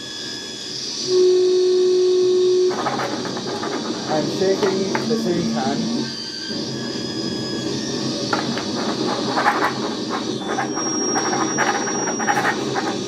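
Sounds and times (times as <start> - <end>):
dense distorted noise: 2.6 - 13.0
thin high whistling tones: 2.7 - 13.0.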